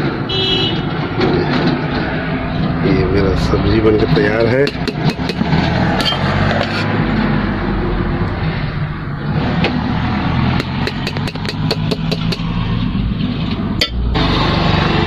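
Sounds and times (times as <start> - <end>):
sharp clicks: 10.6 - 12.5.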